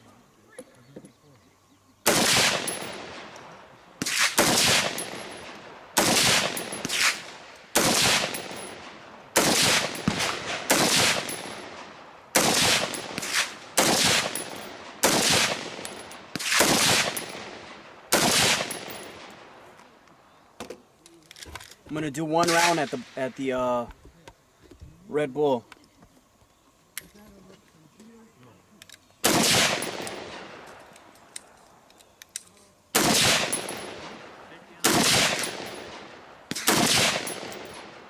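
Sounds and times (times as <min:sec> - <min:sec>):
faint gunshots: 0:02.0 - 0:19.6, 0:29.2 - 0:30.8, 0:32.9 - 0:38.0
gunshots with echo: 0:02.1 - 0:03.4, 0:04.0 - 0:19.4, 0:29.2 - 0:30.7, 0:33.0 - 0:38.0.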